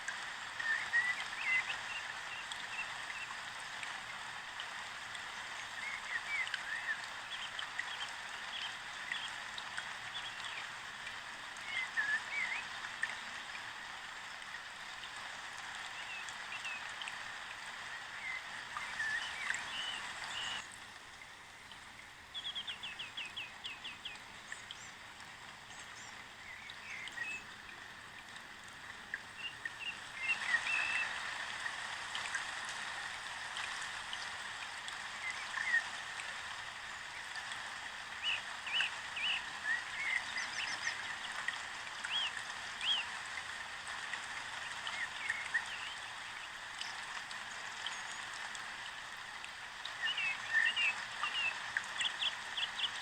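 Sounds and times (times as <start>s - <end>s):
small birds chirping: 18.3s - 20.7s, 22.3s - 25.0s.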